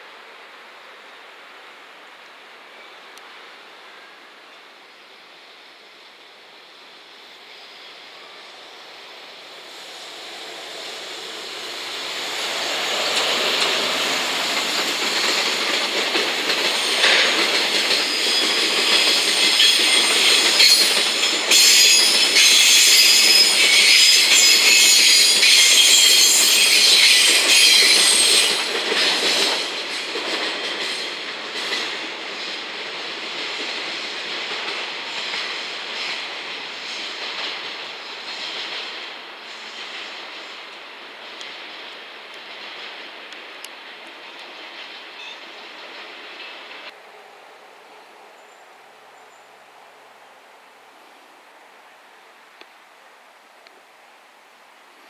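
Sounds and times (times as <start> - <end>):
train wheels squealing: 9.7 - 32.6, 44.2 - 46.7
train wheels clattering: 9.7 - 47.0.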